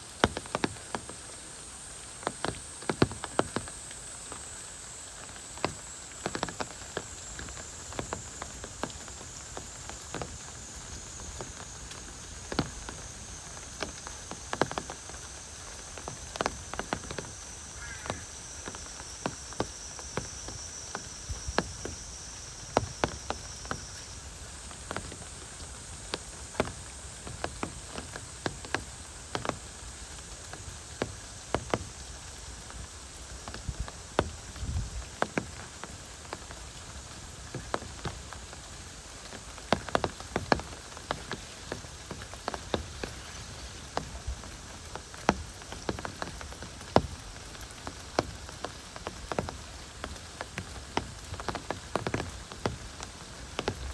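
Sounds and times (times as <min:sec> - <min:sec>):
heavy rain falling: 0:00.0 - 0:53.9
faint high whine: 0:01.2 - 0:27.2.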